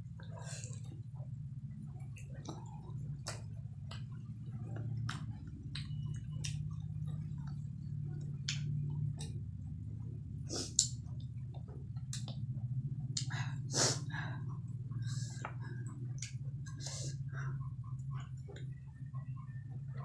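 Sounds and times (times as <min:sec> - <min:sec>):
steady low hum: 0:00.0 - 0:20.0
chewing and wet mouth smacks: 0:01.9 - 0:09.7, 0:10.5 - 0:13.5, 0:15.3 - 0:16.9.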